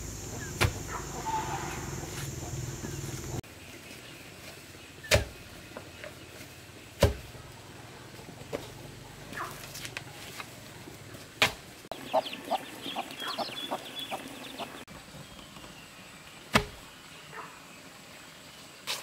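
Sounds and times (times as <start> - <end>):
chickens clucking: 0.0 - 3.4, 11.9 - 14.8.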